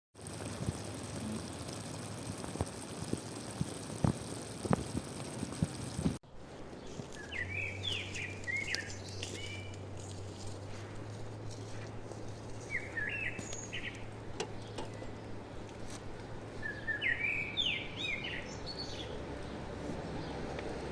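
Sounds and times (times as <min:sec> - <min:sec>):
outdoor background hiss: 0:00.2 - 0:20.9
low steady hum: 0:06.3 - 0:20.9
songbird chirping short calls: 0:06.8 - 0:10.2, 0:12.6 - 0:15.4, 0:16.6 - 0:19.2.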